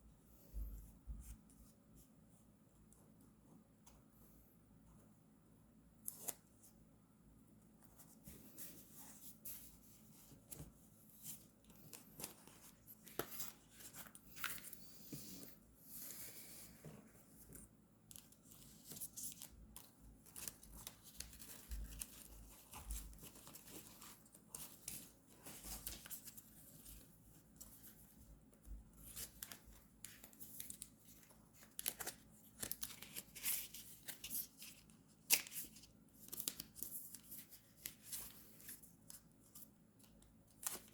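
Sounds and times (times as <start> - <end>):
paper rustling: 8.0 - 39.7.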